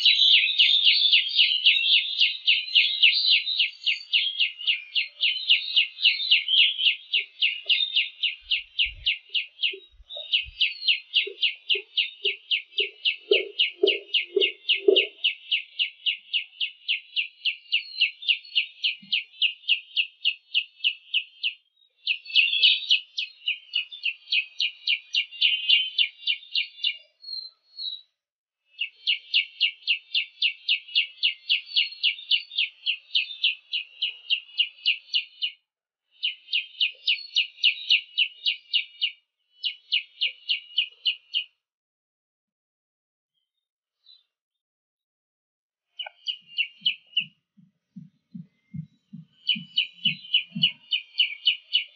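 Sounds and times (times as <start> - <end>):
bird chirping rapidly: 7.1 - 15.4, 46.0 - 47.4, 48.0 - 51.9.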